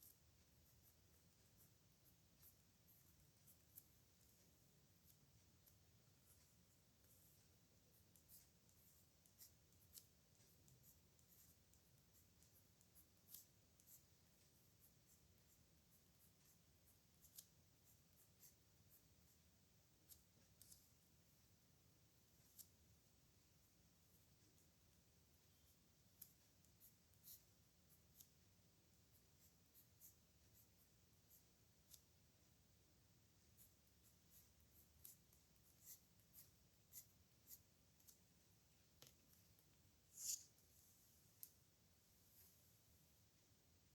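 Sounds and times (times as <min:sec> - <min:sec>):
pen scratching on paper: 0:00.0 - 0:21.0, 0:25.5 - 0:32.2, 0:33.4 - 0:38.2.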